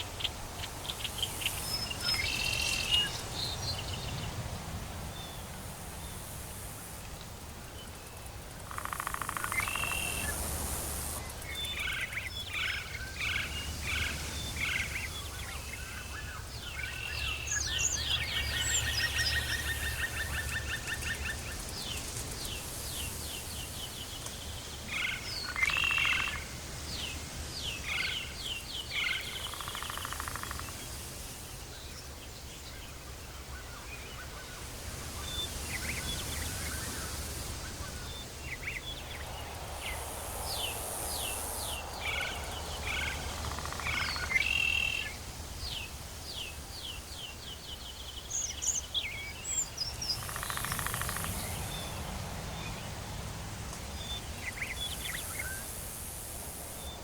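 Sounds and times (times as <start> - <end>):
animal calls chirps and trills: 8.6 - 24.0, 27.8 - 31.0, 33.6 - 45.2, 49.6 - 52.1.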